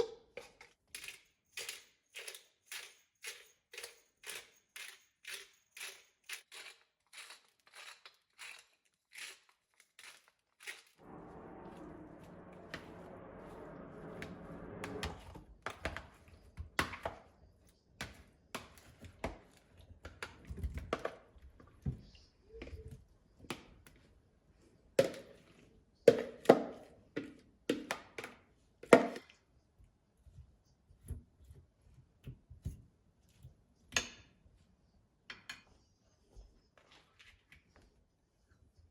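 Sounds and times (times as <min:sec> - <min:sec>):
low hum: 0:11.0 - 0:16.8.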